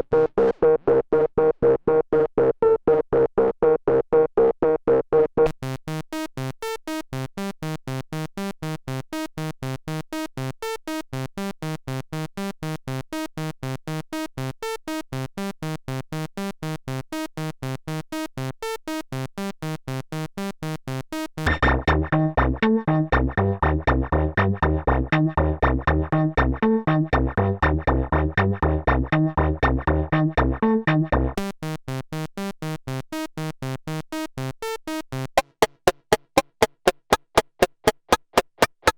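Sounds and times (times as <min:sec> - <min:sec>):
synthesizer sequenced pattern: 0:35.4 - 0:38.9.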